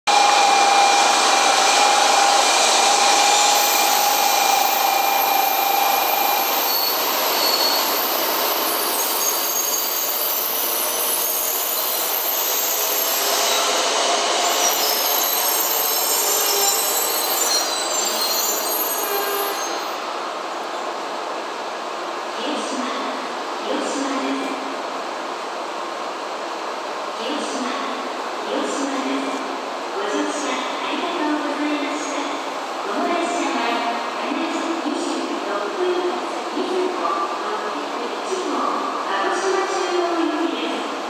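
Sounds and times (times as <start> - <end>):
high-pitched wheel squealing: 0.1 - 13.8
train wheels rushing on rail: 0.1 - 41.0.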